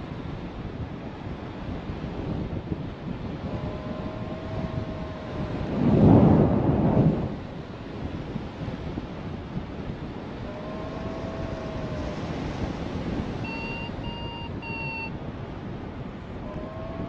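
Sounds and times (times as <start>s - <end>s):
strong wind on microphone: 0.0s - 17.0s
short beeps: 13.4s - 15.1s
variometer tone sliding in pitch: 13.4s - 15.1s.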